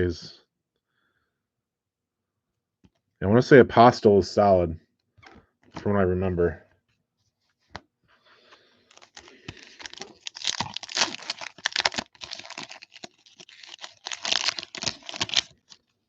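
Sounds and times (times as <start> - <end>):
foil wrapper tearing and crinkling: 8.9 - 16.0.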